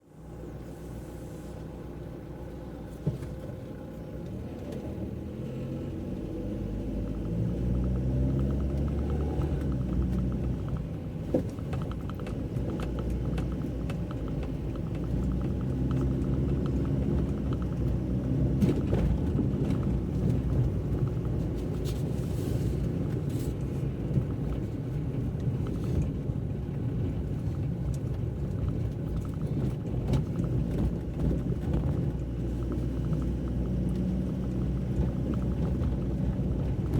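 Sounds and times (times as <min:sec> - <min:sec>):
car engine and road rumble: 0:00.0 - 0:36.9
small clicks: 0:06.1 - 0:22.1, 0:27.4 - 0:36.9.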